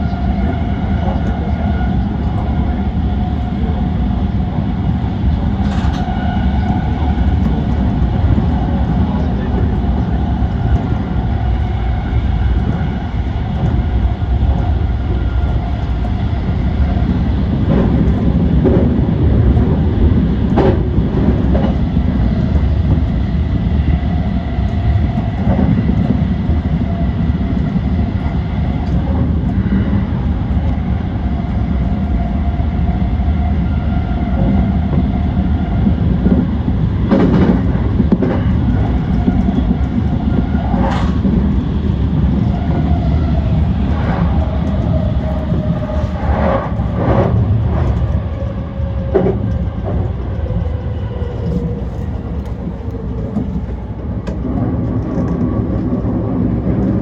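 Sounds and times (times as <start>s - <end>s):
electric train rumble: 0.0s - 57.0s
wheels clacking over rail joints: 35.8s - 57.0s.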